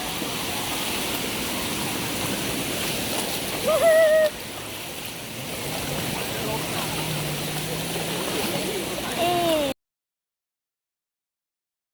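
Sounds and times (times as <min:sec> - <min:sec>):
sea waves washing: 0:00.0 - 0:09.8
short high-pitched voice: 0:09.2 - 0:09.8.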